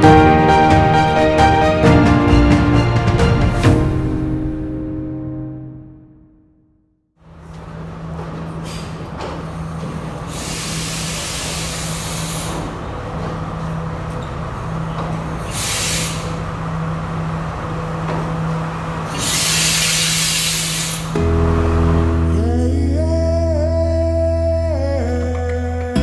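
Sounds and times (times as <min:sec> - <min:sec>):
train engine humming: 0:00.0 - 0:04.6, 0:07.2 - 0:22.6
air hissing: 0:08.6 - 0:13.8, 0:14.6 - 0:17.3, 0:19.0 - 0:22.3.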